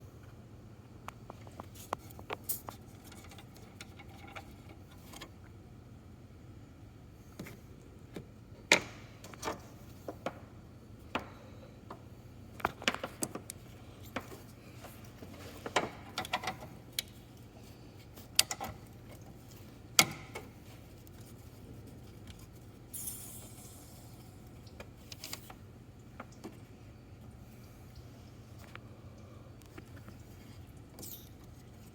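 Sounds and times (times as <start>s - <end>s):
short hiss: 22.9s - 24.1s.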